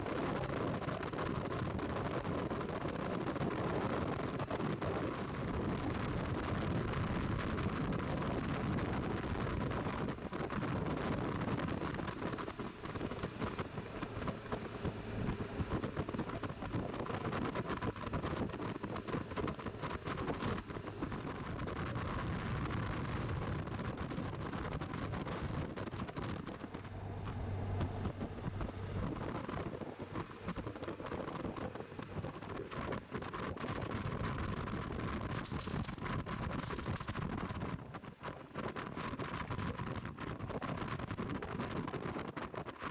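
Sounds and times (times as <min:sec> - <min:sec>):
wind noise on microphone: 0:00.0 - 0:42.9
motorcycle engine drone: 0:05.3 - 0:37.2.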